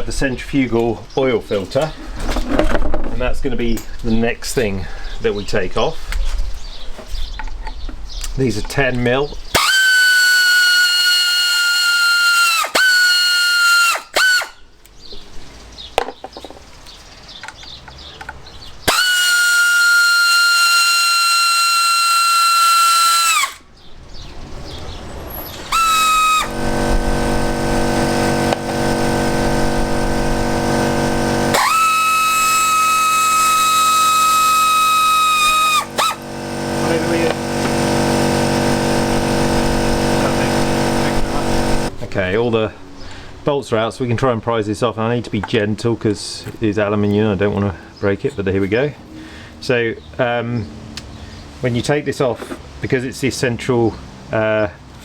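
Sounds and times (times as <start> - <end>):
cordless power tool whining: 9.5 - 14.6, 18.8 - 23.6, 25.4 - 42.0.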